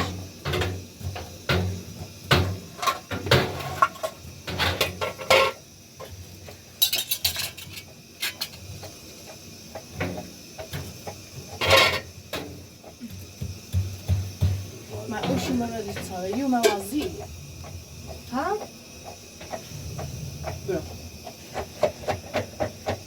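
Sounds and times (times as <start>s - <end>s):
dishes and utensils clattering: 2.3s - 5.6s, 6.8s - 8.6s, 11.5s - 12.1s.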